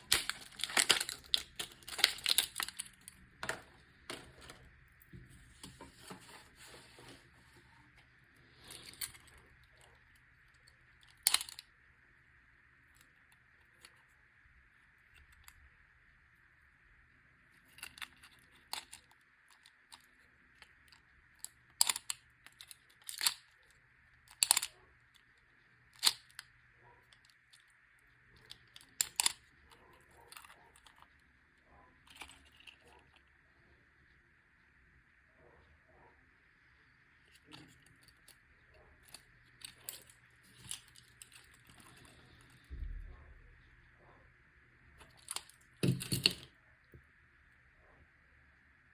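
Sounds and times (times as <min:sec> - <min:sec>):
packaging tearing: 0:00.0 - 0:03.0
packaging clicks: 0:00.0 - 0:04.7, 0:21.7 - 0:23.4, 0:26.0 - 0:26.4, 0:28.4 - 0:29.5
faint high-pitched hum: 0:00.0 - 0:48.9.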